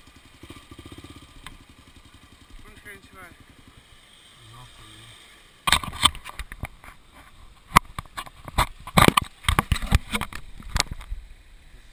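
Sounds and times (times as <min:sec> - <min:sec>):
sharp clicks and knocks: 0:05.7 - 0:11.2.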